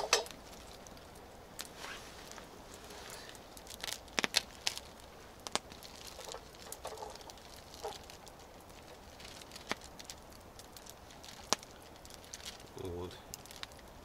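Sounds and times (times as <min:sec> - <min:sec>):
campfire pops and crackles: 0:00.0 - 0:14.0.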